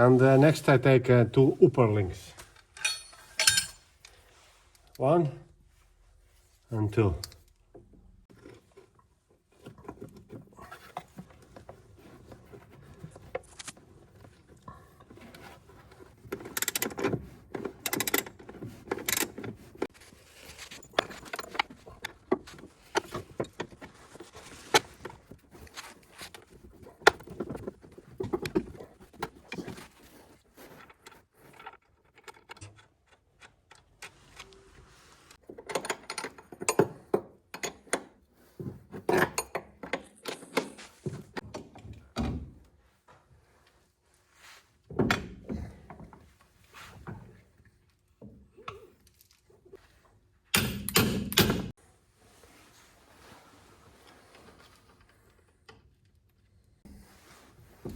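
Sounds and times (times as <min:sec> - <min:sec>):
metal parts clinking and scraping: 0:02.4 - 0:04.2, 0:16.4 - 0:28.6.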